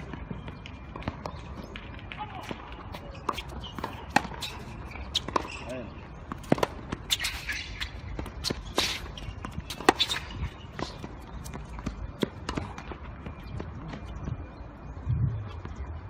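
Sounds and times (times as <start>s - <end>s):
tennis ball struck and bouncing: 6.3s - 12.9s.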